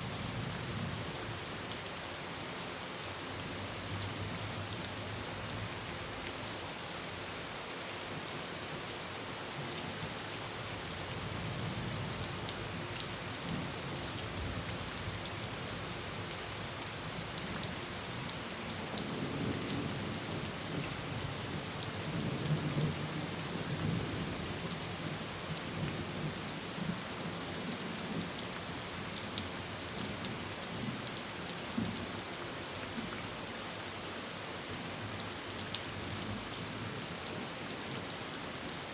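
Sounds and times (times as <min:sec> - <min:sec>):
heavy rain on a tin roof: 0:00.0 - 0:38.9
low rumble of thunder: 0:19.0 - 0:28.4.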